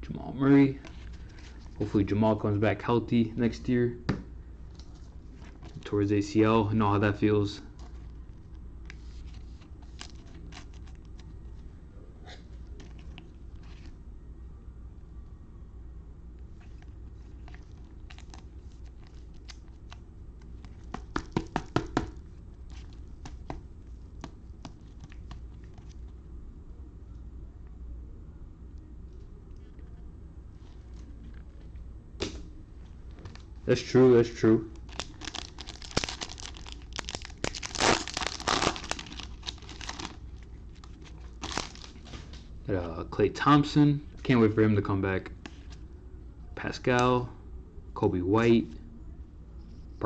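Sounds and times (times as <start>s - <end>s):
cards and packaging rustling: 8.9s - 11.3s, 16.6s - 26.0s, 33.2s - 42.4s
foil wrapper crinkling and tearing: 34.3s - 42.1s.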